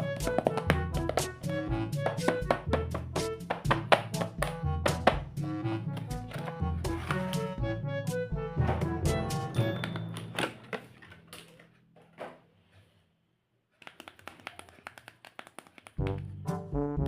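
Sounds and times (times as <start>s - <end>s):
music with a beat: 0.0s - 9.5s
background music: 0.0s - 11.1s, 16.0s - 17.0s.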